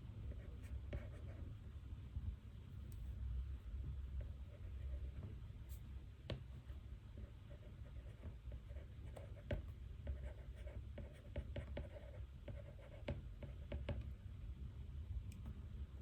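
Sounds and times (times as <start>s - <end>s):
low room hum: 0.0s - 16.0s
pen scratching on paper: 0.3s - 1.4s, 7.5s - 13.9s.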